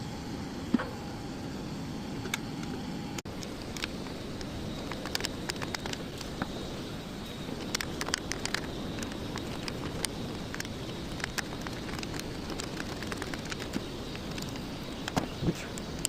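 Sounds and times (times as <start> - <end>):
small irregular clicks and taps: 3.3 - 6.6, 7.5 - 16.0.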